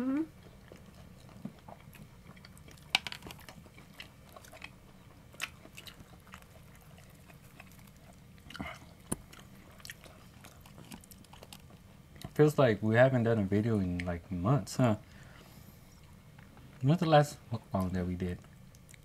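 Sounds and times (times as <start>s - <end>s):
people chewing: 0.0s - 12.4s, 17.6s - 19.0s.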